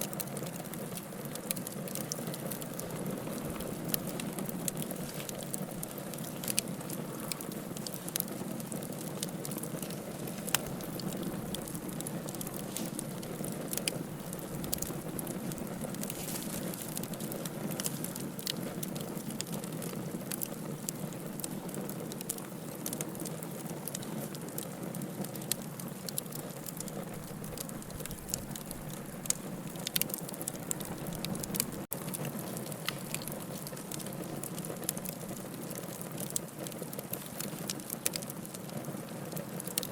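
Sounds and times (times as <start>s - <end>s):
fire burning: 0.0s - 39.9s
fire crackling and popping: 0.0s - 39.9s.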